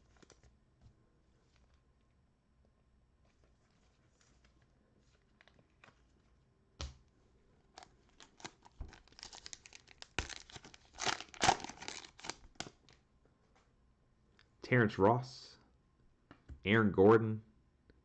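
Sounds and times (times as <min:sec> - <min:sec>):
plastic wrapper tearing and crinkling: 0:07.7 - 0:13.0.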